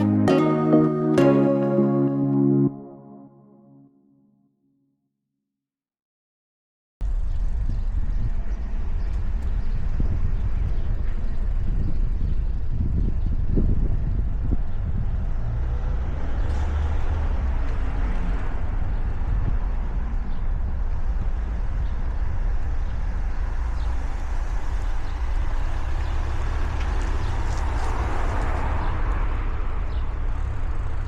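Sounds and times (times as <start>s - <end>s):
bicycle tyres rolling on road: 7.0s - 31.0s
wind buffeting microphone: 7.2s - 16.2s.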